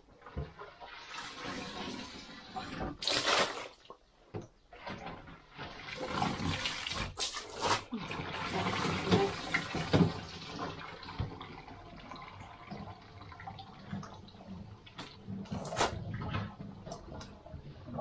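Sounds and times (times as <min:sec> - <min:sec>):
water splashing and pouring: 0:00.2 - 0:04.0, 0:04.7 - 0:17.8.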